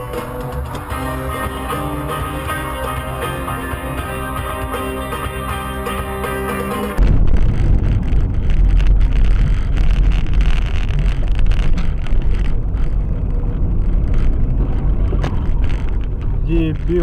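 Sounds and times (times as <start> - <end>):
car road and wind rumble: 0.0 - 17.0.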